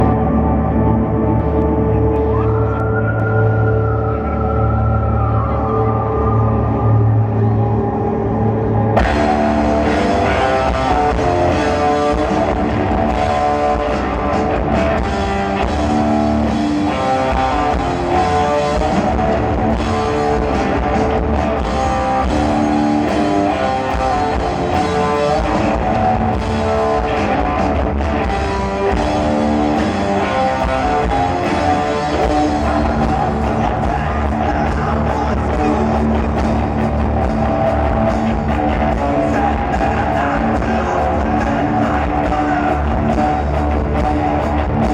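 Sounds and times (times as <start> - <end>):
electric guitar: 0.0 - 44.9
drum kit: 9.0 - 44.9.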